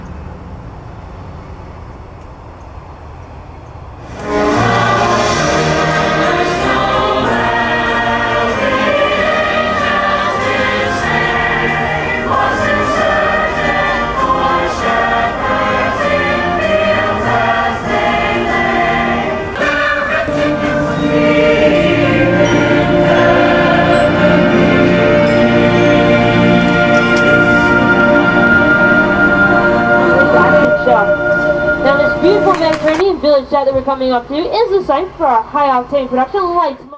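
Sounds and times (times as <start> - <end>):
choir singing held notes: 4.0 - 33.1
musical accompaniment: 4.1 - 33.1.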